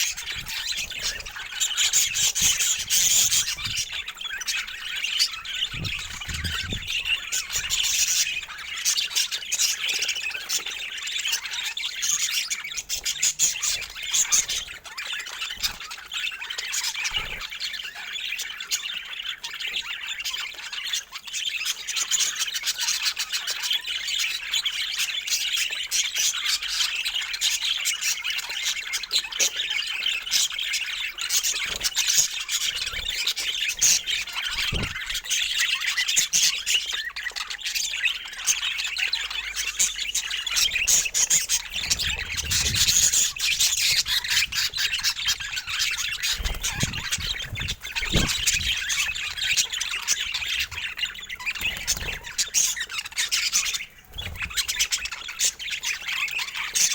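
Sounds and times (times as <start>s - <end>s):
budgerigars chattering and squawking: 0.0s - 56.9s
faint low thumps: 5.6s - 7.2s.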